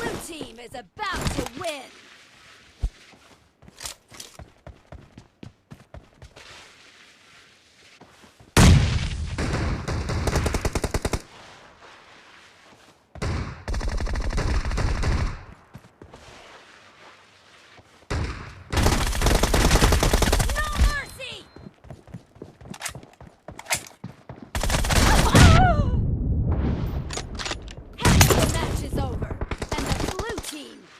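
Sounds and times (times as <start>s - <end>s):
video game automatic gunfire: 18.7s - 21.0s.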